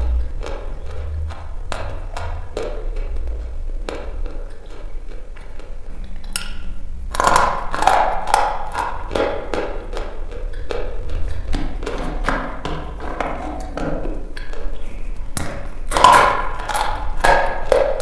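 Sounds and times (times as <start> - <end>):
chalk being chewed and crunched: 3.0 - 11.6, 13.2 - 18.0.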